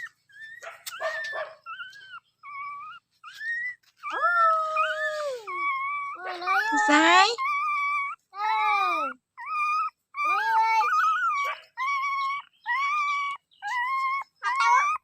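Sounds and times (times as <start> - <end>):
dog whining: 0.0 - 15.0.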